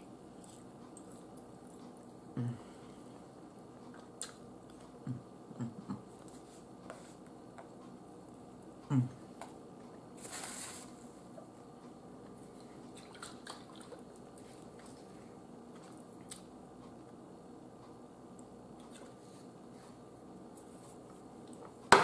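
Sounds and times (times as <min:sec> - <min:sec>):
person chewing food: 0:00.3 - 0:02.2, 0:02.9 - 0:08.4, 0:12.2 - 0:17.2, 0:18.4 - 0:19.5.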